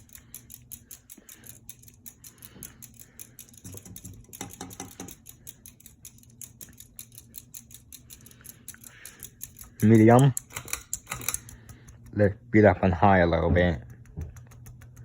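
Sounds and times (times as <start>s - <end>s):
ceiling fan clicking: 0.0s - 15.0s
low fan hum: 0.0s - 15.0s.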